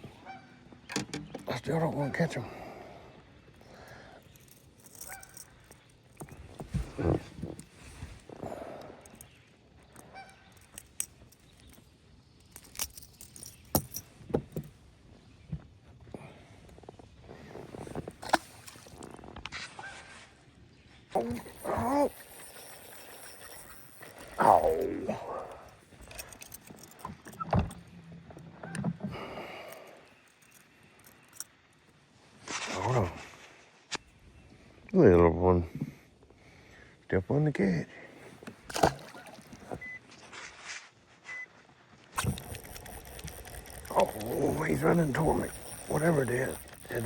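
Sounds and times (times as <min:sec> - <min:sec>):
fishing tackle clicking: 0:04.2 - 0:06.6, 0:09.0 - 0:14.0, 0:21.2 - 0:27.4, 0:42.2 - 0:47.0.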